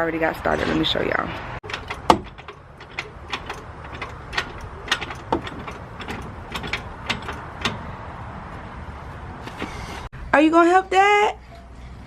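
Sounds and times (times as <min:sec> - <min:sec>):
metal tools clicking and clinking: 0:01.6 - 0:07.9.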